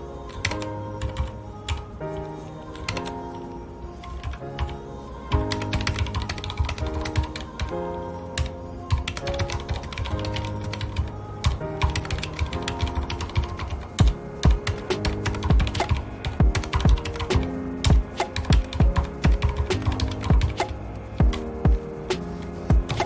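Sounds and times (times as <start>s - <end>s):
soft background music: 0.0s - 23.0s
mechanical keyboard typing: 9.0s - 13.8s, 18.2s - 21.5s.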